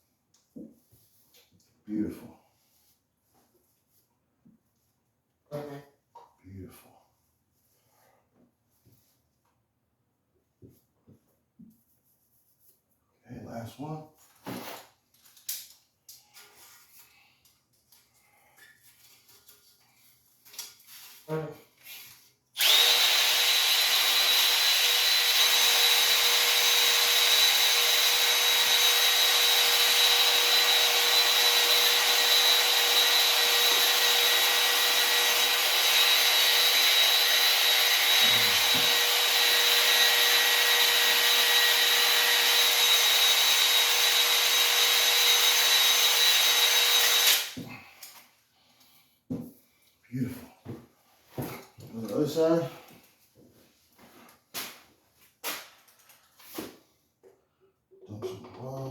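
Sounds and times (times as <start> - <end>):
electric drill whining: 22.6 - 47.6.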